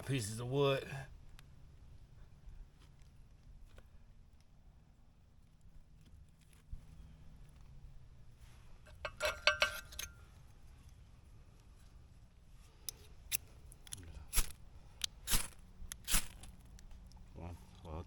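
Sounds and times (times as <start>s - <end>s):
ferro rod striker scrapes: 8.8s - 10.2s, 12.6s - 16.6s.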